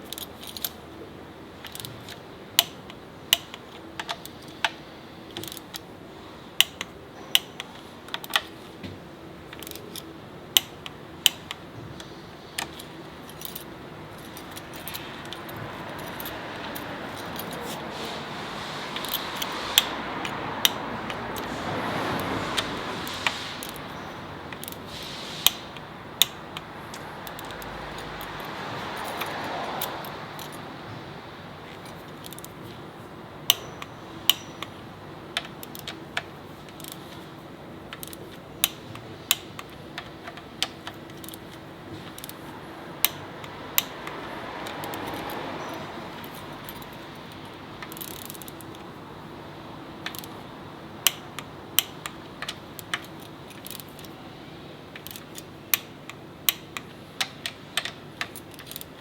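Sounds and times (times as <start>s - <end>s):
steady background hiss: 0.0s - 59.0s
metallic clinks of hand tools: 33.5s - 34.8s.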